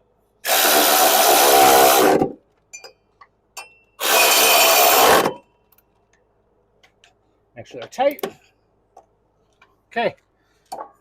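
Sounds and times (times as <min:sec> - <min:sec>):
power tool driving bolts: 0:00.4 - 0:02.4, 0:04.0 - 0:05.5.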